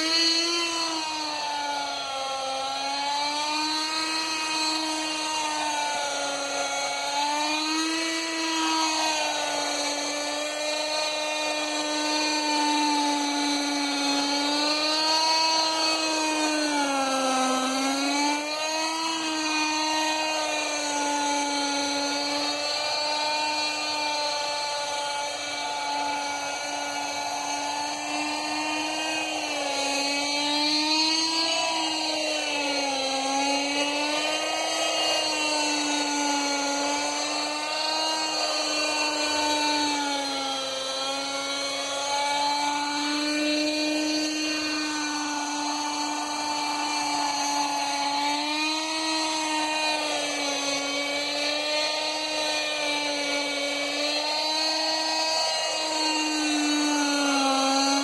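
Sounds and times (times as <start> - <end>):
model helicopter engine buzzing: 0.0 - 58.0.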